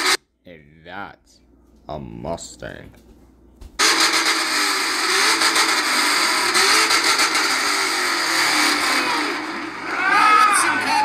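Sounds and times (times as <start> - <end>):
car engine revving loudly: 3.8 - 11.0.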